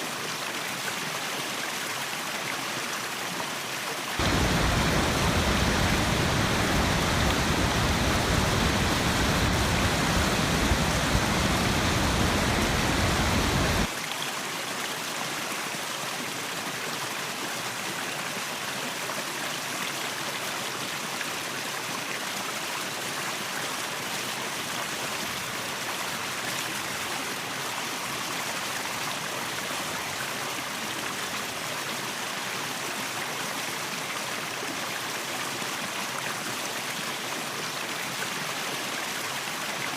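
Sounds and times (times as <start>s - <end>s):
waterfall and rushing stream: 0.0s - 39.9s
deep low rumble: 4.2s - 13.9s.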